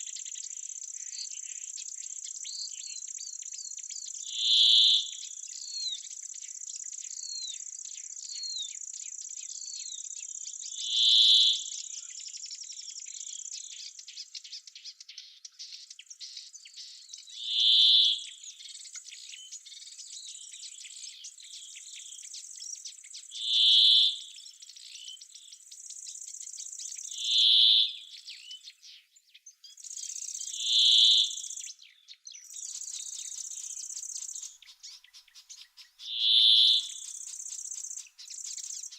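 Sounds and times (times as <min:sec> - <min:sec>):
bird singing short call: 0:34.9 - 0:37.0.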